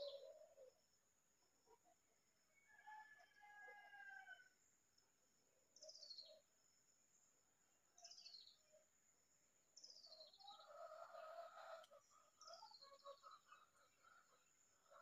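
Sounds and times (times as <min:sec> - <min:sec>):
faint songbird calls: 0:00.0 - 0:00.8, 0:05.8 - 0:06.5, 0:09.8 - 0:15.0.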